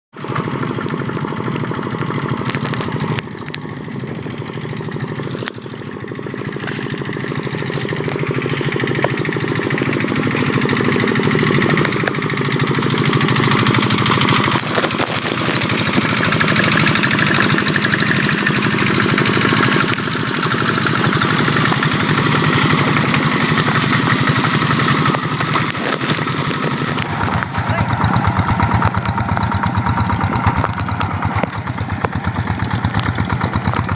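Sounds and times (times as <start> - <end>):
tractor engine running: 0.1 - 33.9.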